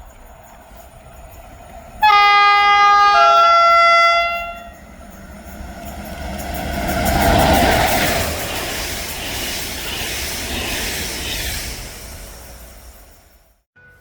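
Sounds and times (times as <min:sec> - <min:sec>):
approaching train running: 0:00.0 - 0:14.0
two-tone train horn blast: 0:02.0 - 0:04.8.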